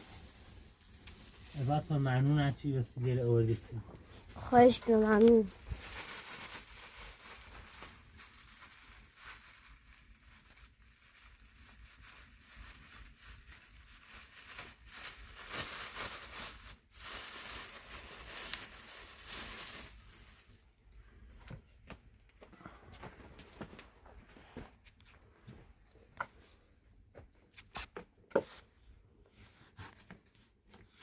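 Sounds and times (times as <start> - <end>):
rustling and crinkling: 0.0 - 31.0.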